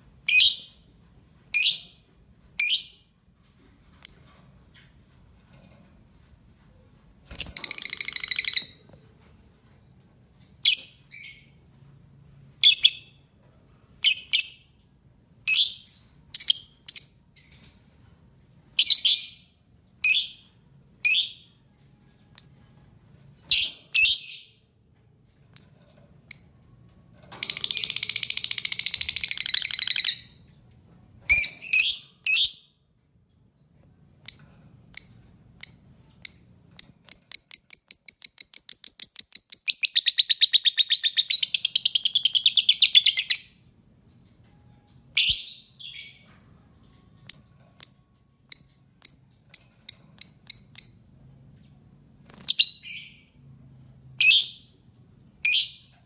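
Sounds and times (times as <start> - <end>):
lovebird chirping: 7.3 - 8.8, 27.4 - 30.4, 34.3 - 43.6, 52.4 - 53.3
lovebird chattering trill: 35.0 - 43.5.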